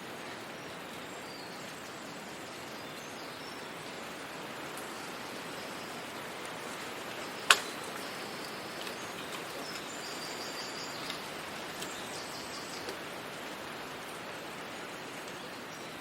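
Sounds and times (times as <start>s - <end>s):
small birds chirping: 0.6s - 13.1s.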